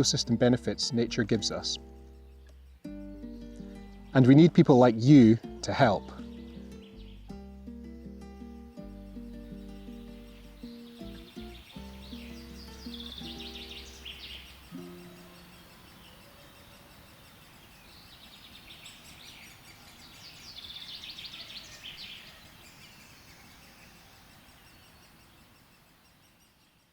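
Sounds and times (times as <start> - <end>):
background music: 0.0 - 16.2
songbird singing: 0.0 - 26.9
outdoor hiss: 8.7 - 26.8.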